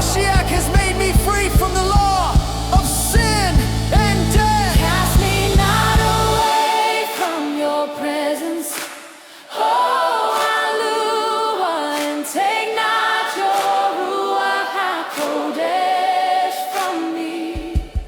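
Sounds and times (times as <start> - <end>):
low pulsing bass beat: 0.0 - 6.4
choir singing held notes: 0.0 - 18.0.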